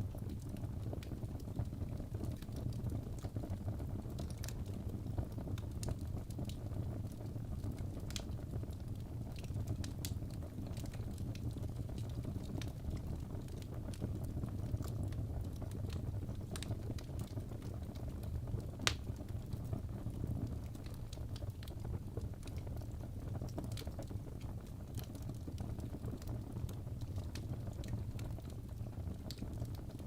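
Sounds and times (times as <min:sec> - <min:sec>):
burning logs crackling and popping: 0:00.0 - 0:30.0
fire flames rumbling: 0:00.0 - 0:30.0.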